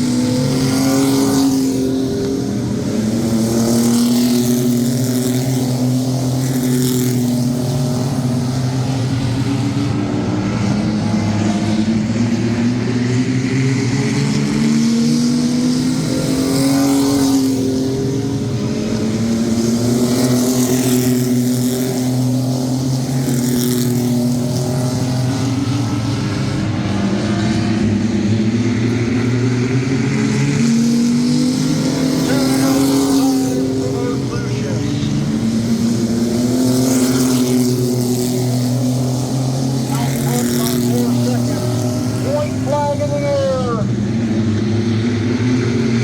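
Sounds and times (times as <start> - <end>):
racing truck engines: 0.0 - 46.0.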